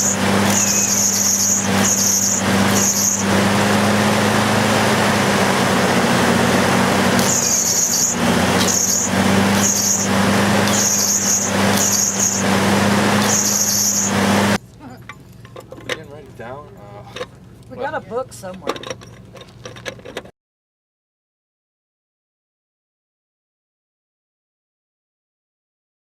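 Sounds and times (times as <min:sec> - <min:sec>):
arc welding crackling hiss: 0:00.0 - 0:04.2, 0:05.8 - 0:14.6
electrical hum: 0:00.0 - 0:18.7.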